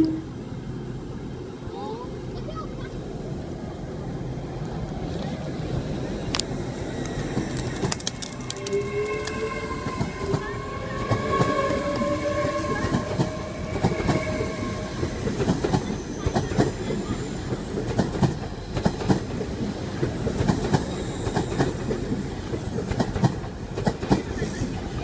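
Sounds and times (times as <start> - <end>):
train wheels rumbling on rail: 0.0 - 25.0
train whine: 0.0 - 25.0
wheels clacking over rail joints: 6.2 - 25.0.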